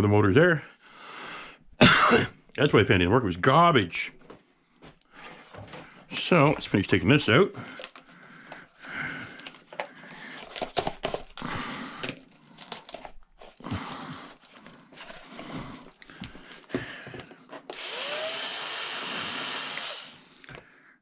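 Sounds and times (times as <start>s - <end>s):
small power tool motor whine: 17.7s - 20.3s.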